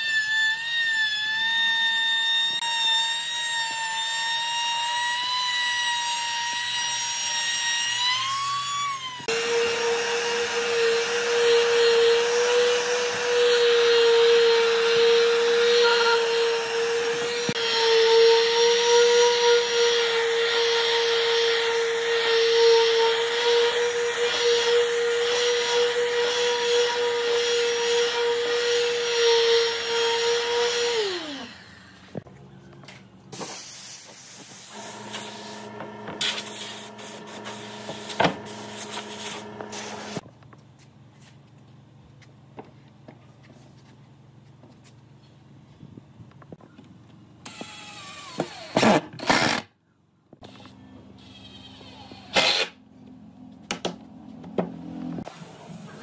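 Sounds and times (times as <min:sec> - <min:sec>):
power tool motor whining: 0:00.0 - 0:32.2, 0:34.7 - 0:40.2.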